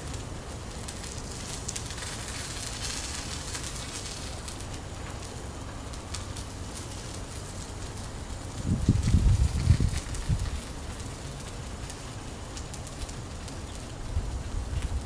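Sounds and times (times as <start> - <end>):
vegetables sizzling on a griddle: 0.0 - 15.0.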